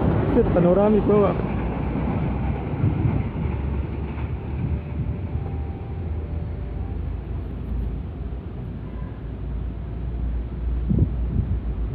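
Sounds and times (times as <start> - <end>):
passenger train rumbling past: 0.0 - 11.9
wind on microphone: 1.4 - 6.2, 10.6 - 11.9.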